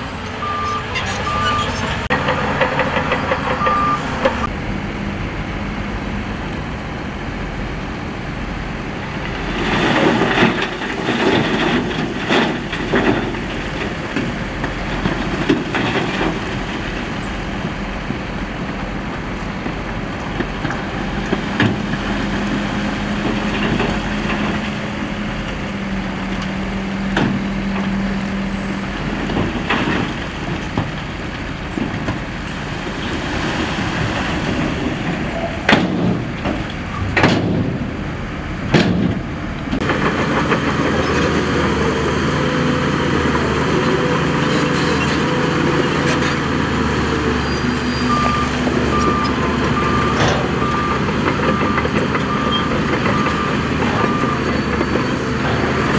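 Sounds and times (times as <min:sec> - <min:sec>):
reversing alarm beeping: 0:00.0 - 0:04.5, 0:48.0 - 0:55.9
heavy diesel machinery running: 0:00.0 - 0:55.9.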